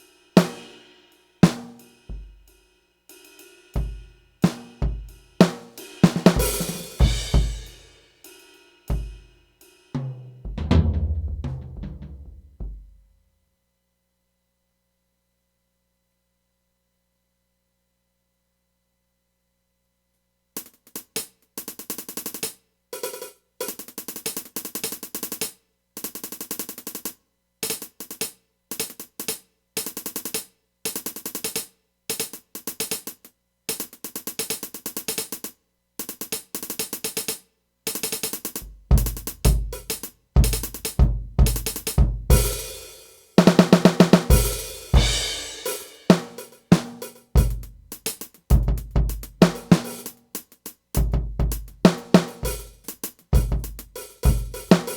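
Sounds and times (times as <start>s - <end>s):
drum kit playing: 0.0s - 2.6s, 3.2s - 13.1s, 36.0s - 54.9s
heavy bass drum hits: 6.1s - 7.8s, 10.4s - 13.0s, 44.3s - 45.7s.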